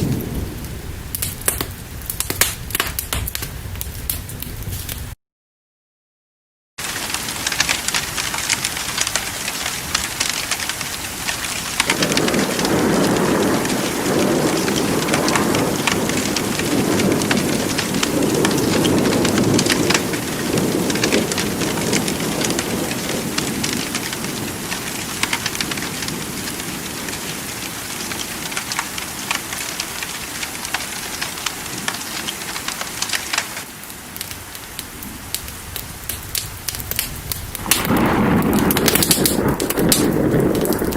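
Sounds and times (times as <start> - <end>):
low rumble of thunder: 0.0 - 5.2, 8.9 - 28.7, 34.2 - 40.9
steady rain: 0.0 - 5.2, 6.8 - 40.9.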